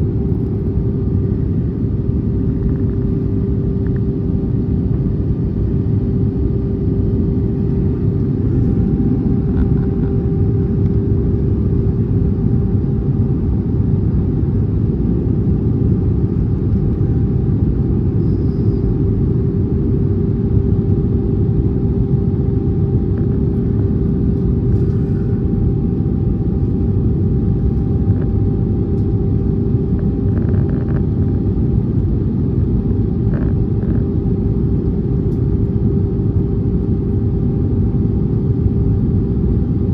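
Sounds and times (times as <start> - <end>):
held hum: 0.0 - 35.4
aircraft cabin engine rumble: 0.0 - 39.9.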